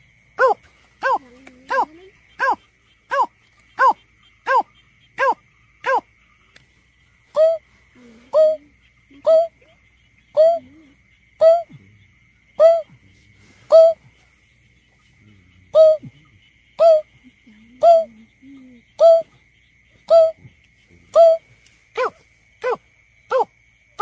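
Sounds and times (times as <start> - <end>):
bird hooting call: 7.4 - 7.6, 8.3 - 9.7, 10.3 - 11.7, 13.7 - 14.0.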